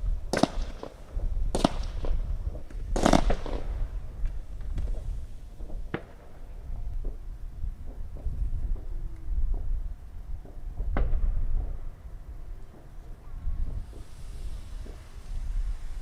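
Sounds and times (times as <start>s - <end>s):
firework crack: 0.0s - 16.0s
firework bangs: 0.3s - 6.7s, 12.7s - 16.0s.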